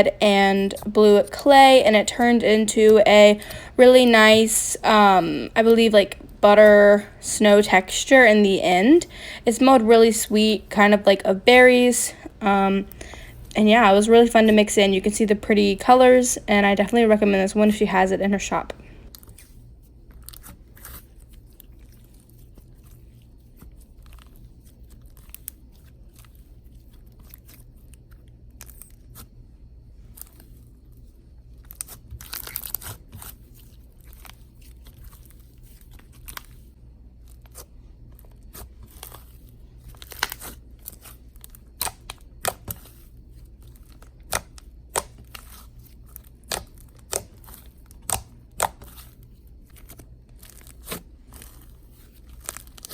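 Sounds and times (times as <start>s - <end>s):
clay slime crackling and popping: 19.0s - 29.4s, 30.0s - 52.9s.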